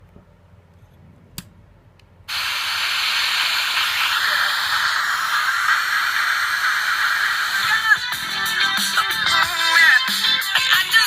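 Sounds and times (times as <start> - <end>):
radio static hiss: 2.3 - 10.5.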